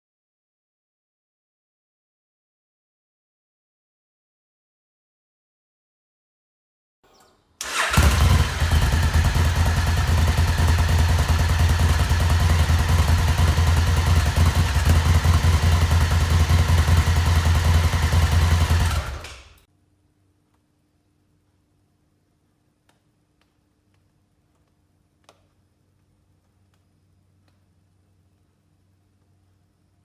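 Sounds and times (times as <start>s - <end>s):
motorcycle engine idling: 7.6s - 19.6s.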